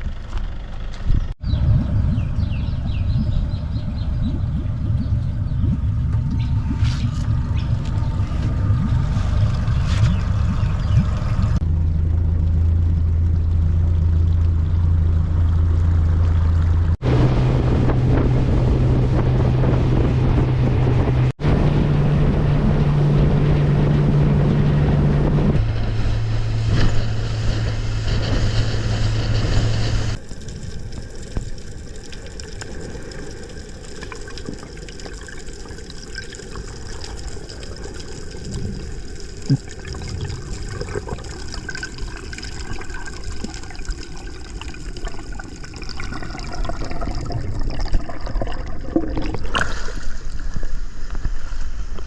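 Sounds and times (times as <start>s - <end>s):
motorboat engine running: 0.0s - 45.3s
wind: 0.0s - 52.0s
water rushing: 1.4s - 51.9s.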